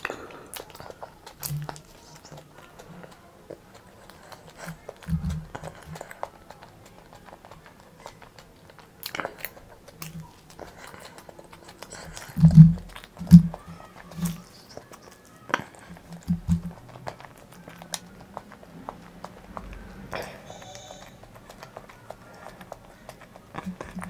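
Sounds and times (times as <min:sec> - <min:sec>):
chewing: 0:00.0 - 0:24.0
mouth clicks: 0:00.0 - 0:24.0
wet lip smacks: 0:00.0 - 0:24.0.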